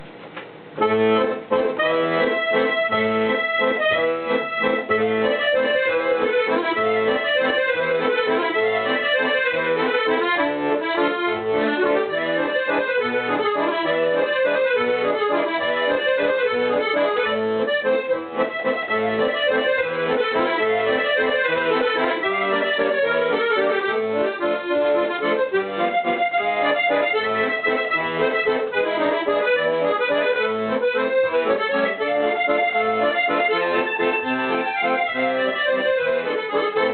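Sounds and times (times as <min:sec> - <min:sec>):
accordion tune: 0:00.0 - 0:36.9.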